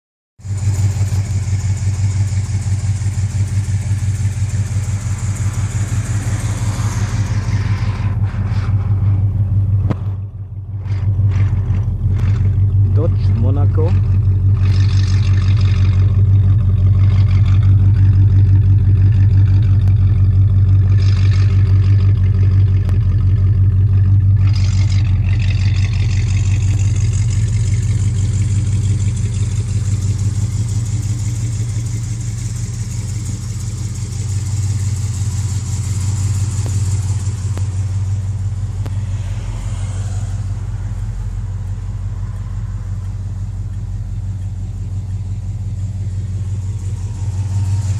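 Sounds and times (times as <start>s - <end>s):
car exhaust idling: 0.4s - 47.9s
hiss: 34.4s - 42.9s, 46.6s - 47.9s.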